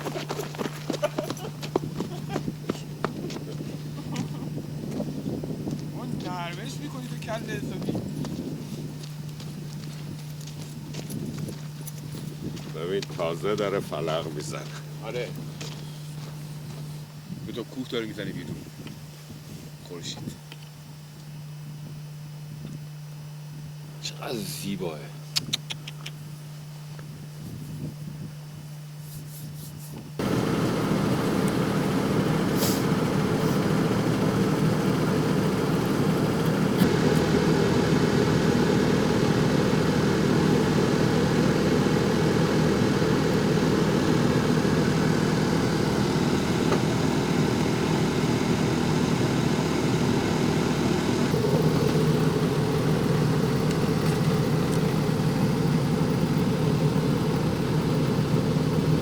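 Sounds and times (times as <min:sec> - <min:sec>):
vehicle engine running: 0:00.0 - 0:17.1, 0:30.2 - 0:59.0.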